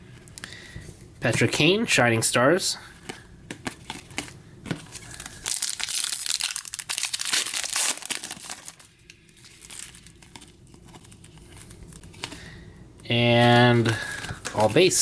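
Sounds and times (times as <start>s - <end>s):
cards being handled: 3.0s - 8.8s
card pack wrapper crinkling and tearing: 3.6s - 12.4s.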